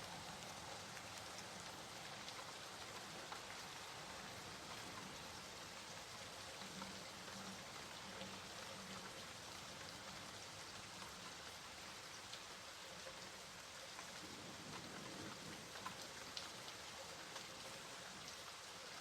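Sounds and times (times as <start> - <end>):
rain hiss: 0.0 - 19.0
raindrops ticking on a surface: 0.0 - 19.0.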